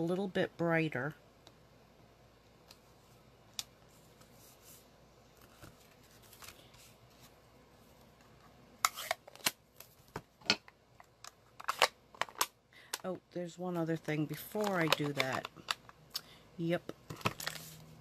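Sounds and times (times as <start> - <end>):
paper rustling: 3.9 - 7.4.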